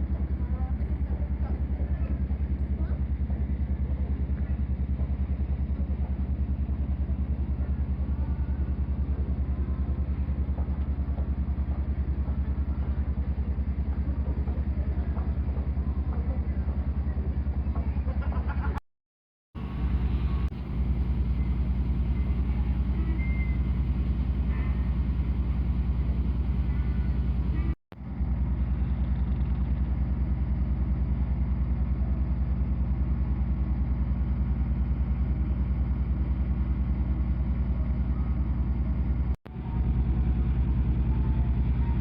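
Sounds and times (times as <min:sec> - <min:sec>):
ship engine throbbing: 0:19.6 - 0:42.0.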